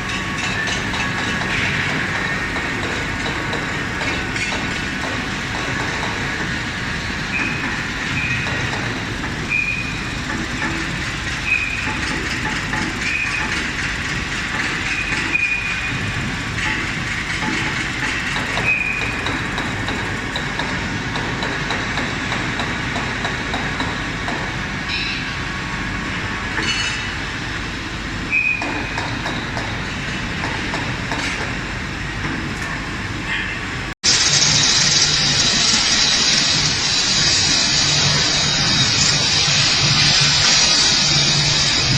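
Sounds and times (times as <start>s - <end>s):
welding arc noise: 0.4s - 24.2s, 34.1s - 41.9s.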